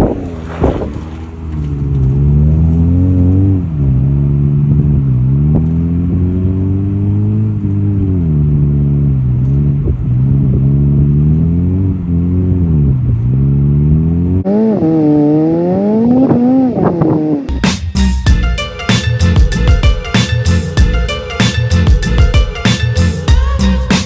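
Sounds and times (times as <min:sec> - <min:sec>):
car engine revving under load: 0:00.0 - 0:17.6.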